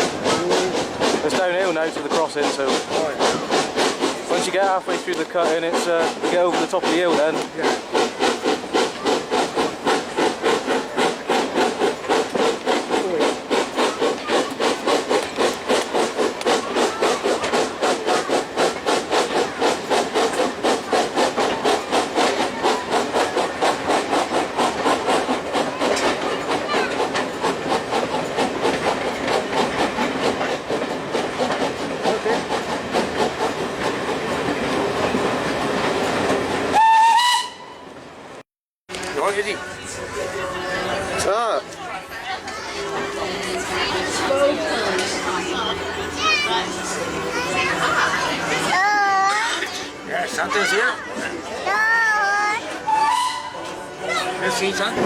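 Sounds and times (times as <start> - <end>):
rail noise: 0.0 - 55.0
steam locomotive exhaust beats: 0.0 - 55.0
steam locomotive whistle: 36.7 - 38.0, 52.8 - 54.0.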